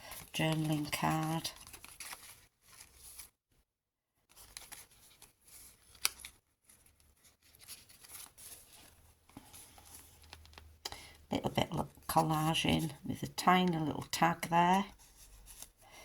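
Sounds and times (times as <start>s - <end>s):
paper rustling and sliding: 0.0s - 3.3s, 4.3s - 10.6s.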